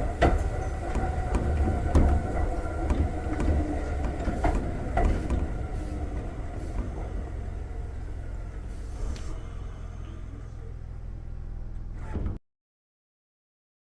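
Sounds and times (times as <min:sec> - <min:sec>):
wheel clicks over rail joints: 0:00.0 - 0:07.2
train running rumble: 0:00.0 - 0:12.1.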